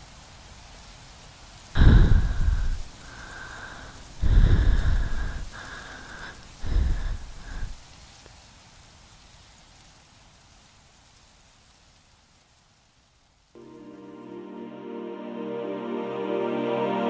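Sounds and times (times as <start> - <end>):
wind gusting with whistling: 1.8 - 2.9.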